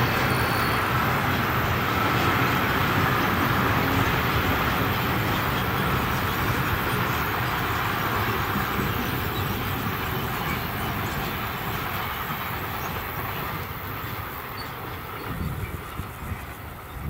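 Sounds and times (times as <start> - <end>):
distant freight train rumbling: 0.0 - 17.0.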